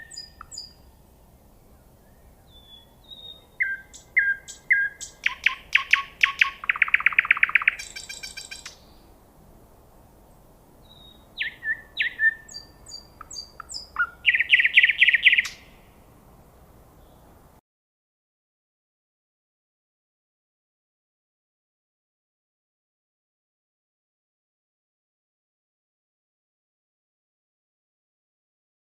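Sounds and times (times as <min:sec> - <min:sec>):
songbird whistling and trilling: 0:00.0 - 0:00.8, 0:02.0 - 0:09.0, 0:10.8 - 0:15.7.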